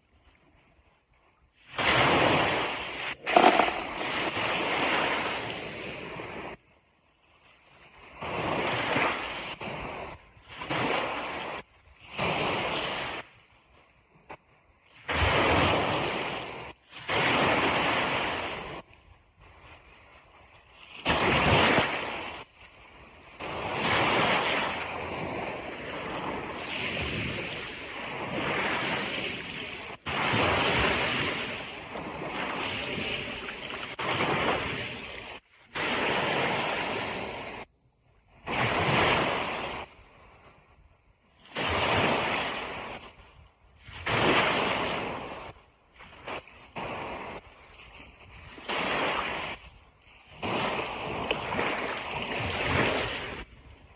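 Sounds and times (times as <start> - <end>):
ocean waves breaking on beach: 1.8 - 6.6, 23.4 - 37.7, 38.4 - 40.6, 41.4 - 53.9.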